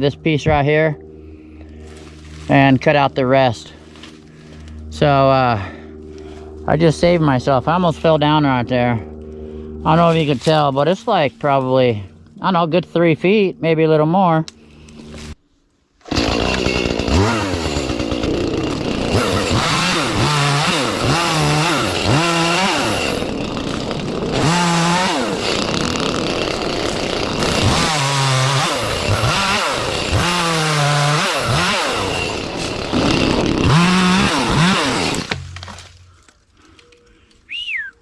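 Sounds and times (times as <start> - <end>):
chainsaw cutting branches: 1.4 - 3.1, 3.7 - 4.9, 14.5 - 15.4, 16.0 - 36.7.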